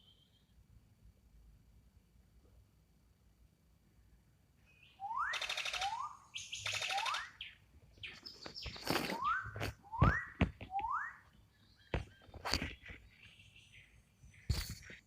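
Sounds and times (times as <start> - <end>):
rising whistled bird notes: 4.7 - 7.6, 8.2 - 11.9
harsh buzzy bird calls: 4.8 - 9.6.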